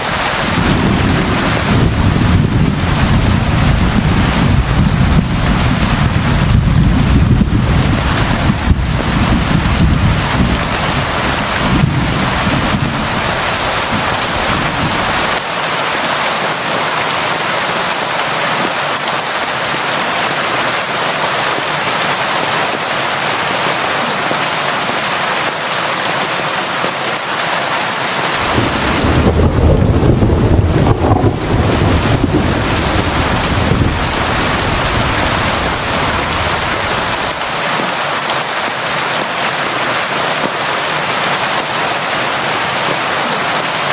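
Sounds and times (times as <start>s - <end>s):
constant rain hiss: 0.0s - 43.9s
thunder rumbling: 0.3s - 15.4s, 28.4s - 37.6s.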